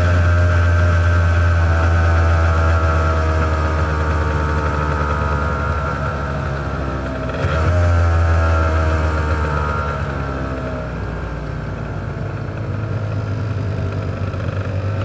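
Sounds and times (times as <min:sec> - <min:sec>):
motorcycle two-stroke engine running: 0:00.0 - 0:15.0.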